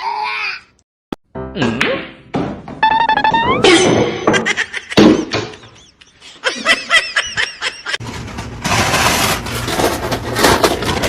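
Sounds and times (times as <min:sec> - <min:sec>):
person laughing: 0:03.2 - 0:08.0.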